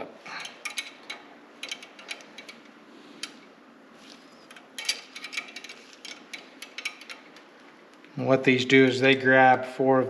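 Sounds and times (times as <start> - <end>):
wrench clicking on metal fittings: 0.3 - 3.4, 4.5 - 7.4.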